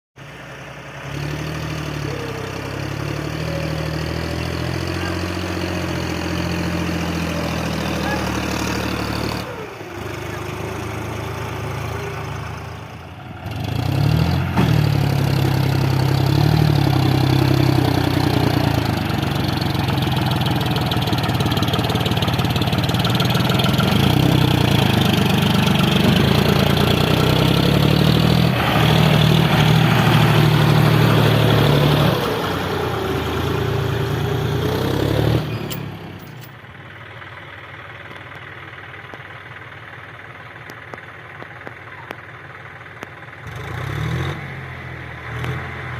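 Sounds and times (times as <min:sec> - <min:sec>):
tractor engine running: 0:00.2 - 0:45.9.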